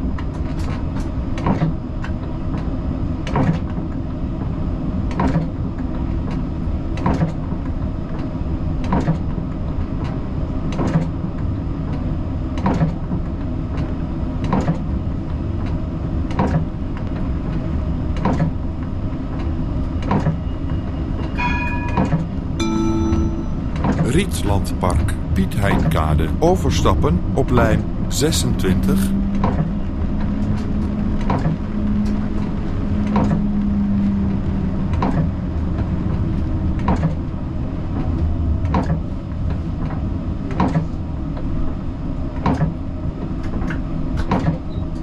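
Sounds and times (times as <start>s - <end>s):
tram rumbling: 13.3s - 44.2s
short pitched chime: 21.4s - 24.8s.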